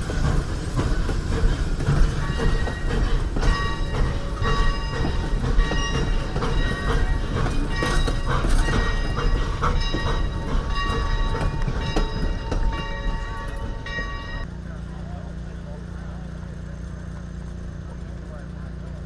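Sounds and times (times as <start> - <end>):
steam train low rumble: 0.0 - 19.0
metallic ringing tones: 2.2 - 14.5.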